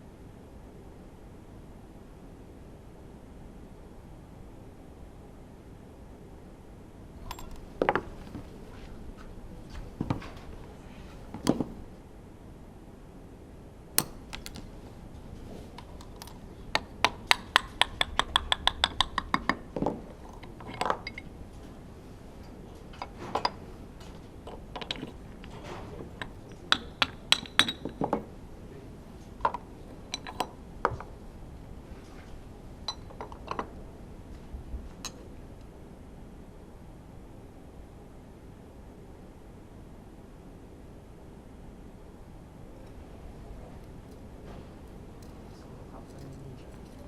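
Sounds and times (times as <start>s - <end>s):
metal tools and parts clinking: 7.2s - 8.4s, 15.8s - 16.9s, 20.1s - 21.3s, 24.5s - 28.2s, 30.0s - 30.6s.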